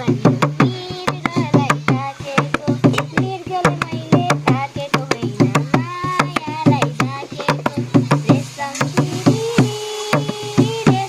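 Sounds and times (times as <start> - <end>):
hand drum rhythm: 0.0 - 11.0
person singing: 0.0 - 11.0.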